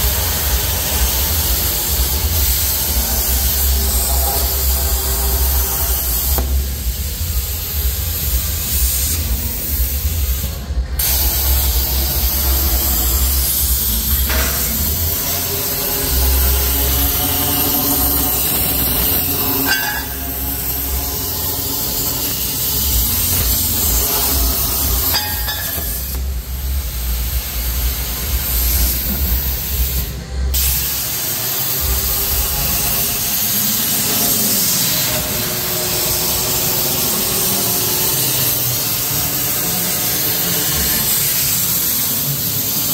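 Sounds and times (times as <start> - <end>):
plasma cutter hissing: 0.0 - 42.9.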